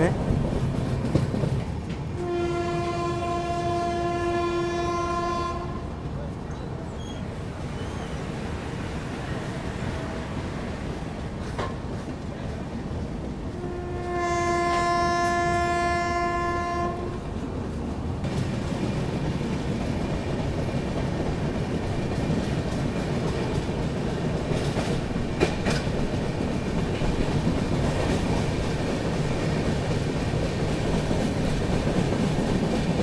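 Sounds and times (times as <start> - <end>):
train wheels clickety-clack: 0.0 - 2.7, 10.6 - 15.6, 17.7 - 33.0
train horn: 2.2 - 6.0, 9.4 - 10.6, 13.5 - 17.2.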